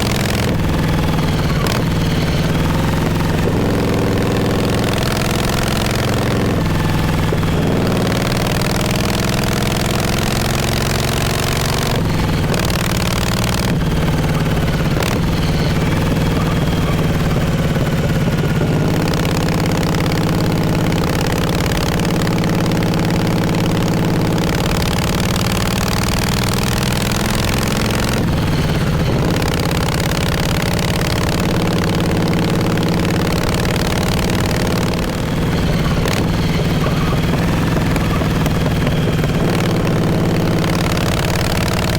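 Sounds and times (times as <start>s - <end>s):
motorcycle exhaust while riding: 0.0s - 41.9s.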